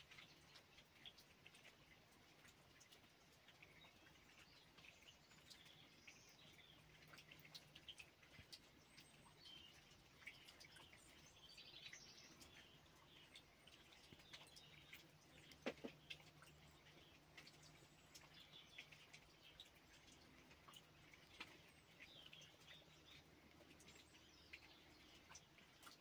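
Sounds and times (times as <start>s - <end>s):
light ticks: 0.0s - 26.0s
small birds chirping: 0.0s - 26.0s.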